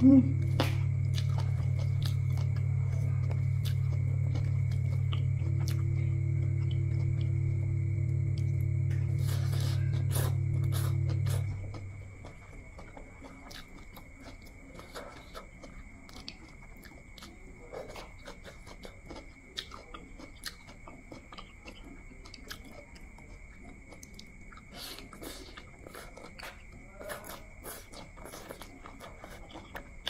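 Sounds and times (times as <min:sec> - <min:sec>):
faint high whine: 0:00.0 - 0:16.0
wet chewing sounds: 0:00.3 - 0:30.0.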